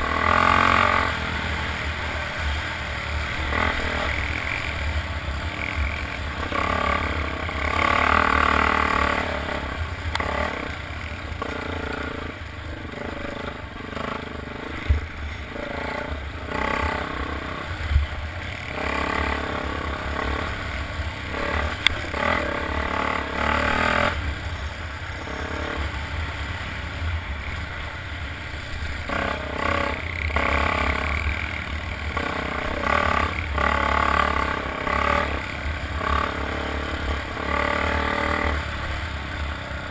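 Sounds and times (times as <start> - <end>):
motorcycles revving and passing: 0.0 - 39.9.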